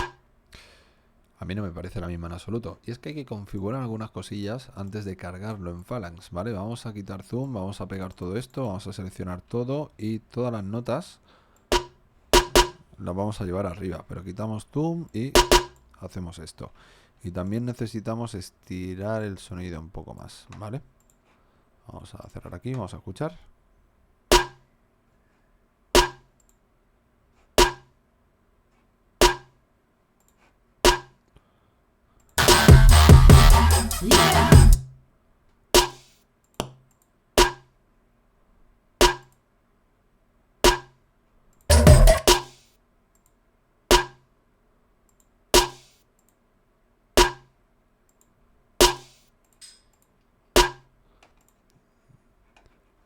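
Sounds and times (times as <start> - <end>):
electronic snare drum hits: 0.0 - 0.2, 11.7 - 12.8, 15.4 - 15.8, 24.3 - 24.6, 26.0 - 26.2, 29.2 - 29.5, 30.9 - 31.1, 32.4 - 34.8, 35.8 - 36.0, 37.4 - 37.6, 39.0 - 39.2, 40.7 - 40.9, 41.7 - 42.6, 45.6 - 45.9, 48.8 - 49.2
snare drum hits: 11.7 - 12.8, 15.4 - 15.7, 35.8 - 36.0, 41.7 - 42.6, 45.6 - 45.8, 48.8 - 49.2.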